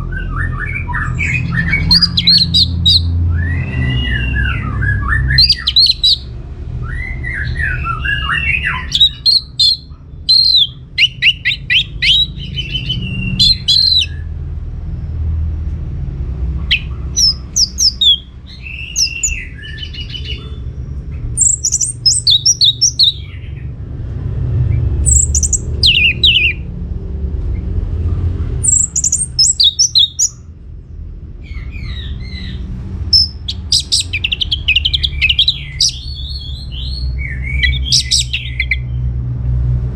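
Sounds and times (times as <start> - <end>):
thrush singing: 0.4 - 6.4, 7.4 - 14.2, 16.6 - 20.6, 21.4 - 23.4, 24.8 - 26.7, 28.6 - 30.4, 33.0 - 38.9.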